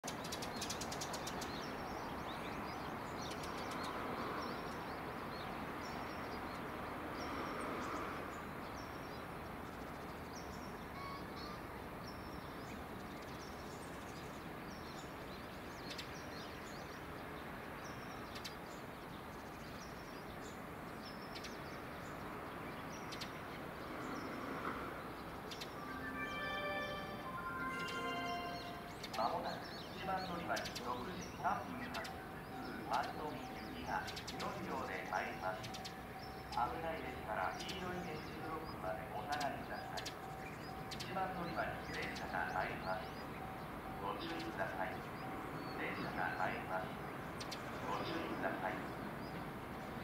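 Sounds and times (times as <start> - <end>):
bird chirping: 0.0 - 50.0
outdoor background noise: 0.0 - 50.0
electronic train-approach chime: 25.6 - 29.7.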